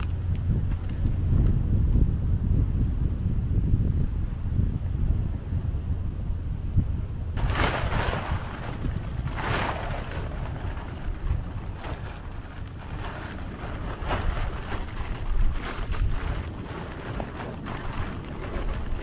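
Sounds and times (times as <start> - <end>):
wind buffeting microphone: 0.0 - 19.0
waves breaking over rocks: 7.4 - 19.0.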